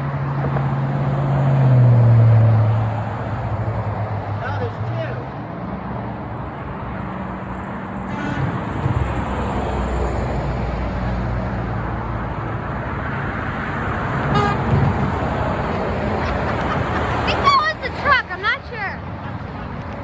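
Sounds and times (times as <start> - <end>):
heavy trucks passing: 0.0 - 20.0
truck horn toot: 8.1 - 8.6, 14.2 - 15.2.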